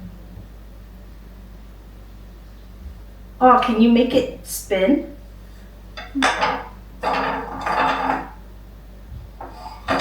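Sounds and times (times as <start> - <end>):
wooden spoon rattling on table: 6.0 - 8.4.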